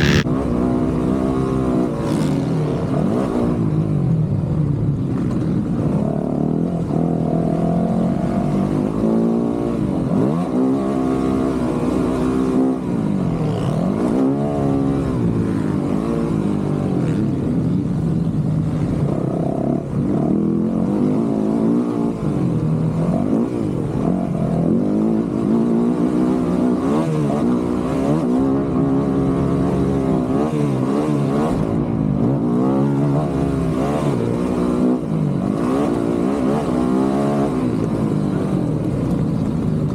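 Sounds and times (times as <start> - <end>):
dirt bike engine revving: 0.0 - 0.3.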